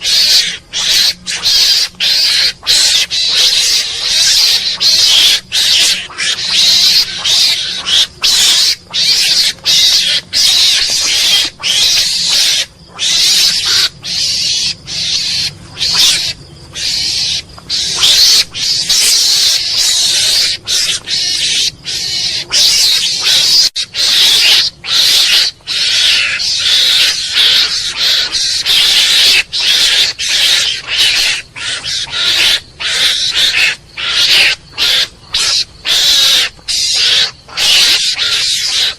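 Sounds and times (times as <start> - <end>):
mongoose chattering calls: 0.0 - 38.9.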